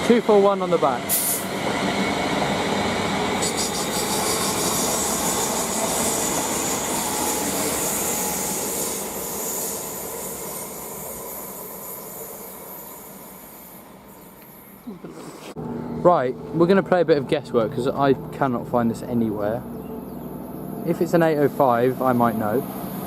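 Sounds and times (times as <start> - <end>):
train wheels on rails: 0.0 - 14.7
train motors humming: 0.0 - 23.0.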